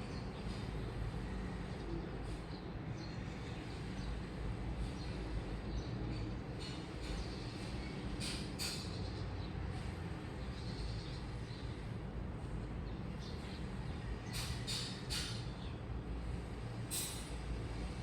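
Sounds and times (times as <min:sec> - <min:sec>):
short hissing noises: 0:16.6 - 0:18.0.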